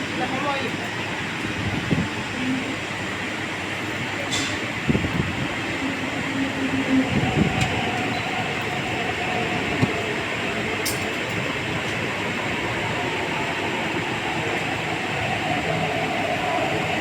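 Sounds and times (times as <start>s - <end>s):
train rumble and hiss: 0.0s - 17.0s.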